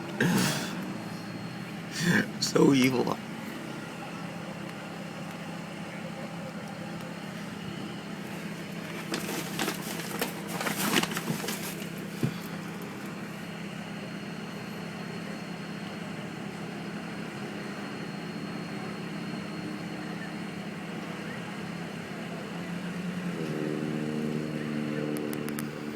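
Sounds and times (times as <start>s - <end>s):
vehicle engine idling: 0.0s - 17.6s.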